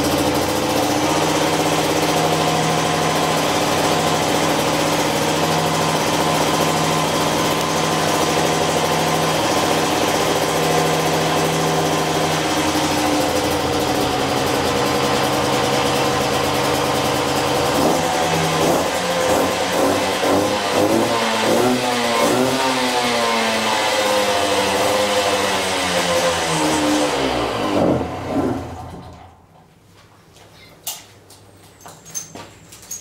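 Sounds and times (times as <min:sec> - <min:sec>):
two-stroke motorcycle engine idling: 0:00.0 - 0:23.2.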